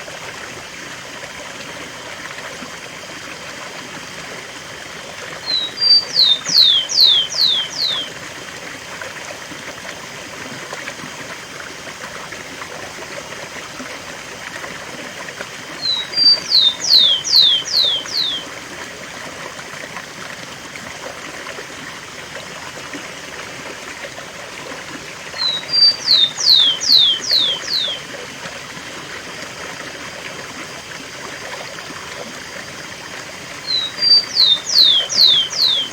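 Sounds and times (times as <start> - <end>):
sparrow singing whistled song: 5.4 - 8.1, 15.8 - 18.5, 25.4 - 28.0, 33.6 - 35.9
waterfall rushing: 25.4 - 28.0, 33.6 - 35.9.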